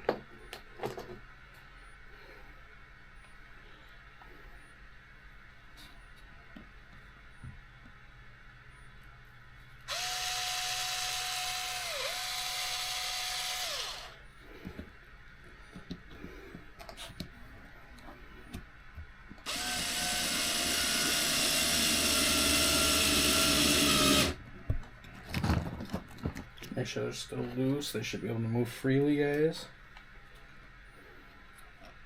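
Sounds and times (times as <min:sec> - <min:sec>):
power screwdriver motor whining: 0:09.9 - 0:14.2, 0:19.4 - 0:24.4.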